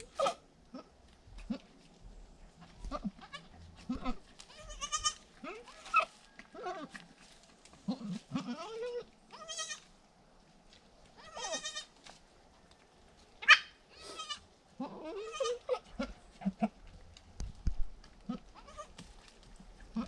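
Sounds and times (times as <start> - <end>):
goats bleating: 2.8 - 6.9, 7.9 - 9.8, 11.2 - 11.9, 13.4 - 16.8.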